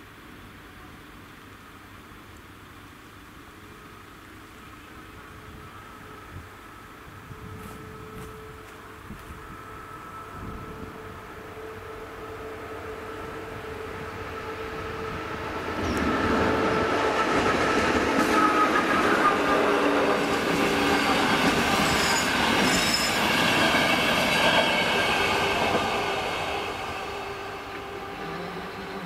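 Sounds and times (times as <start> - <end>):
train passing: 2.7 - 29.0
wheel squeal: 20.8 - 24.5.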